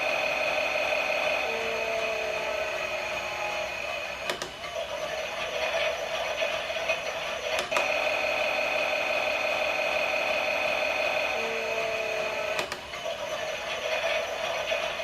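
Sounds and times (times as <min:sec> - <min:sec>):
small toy motor whirring: 0:05.0 - 0:15.0.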